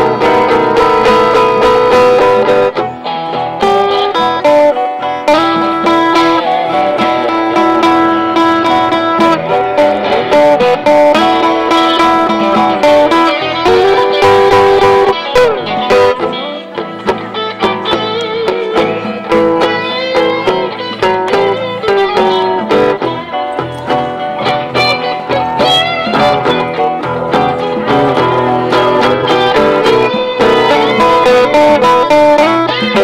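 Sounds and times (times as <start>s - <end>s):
band backing music: 0.0s - 33.0s
blues guitar solo: 0.0s - 33.0s.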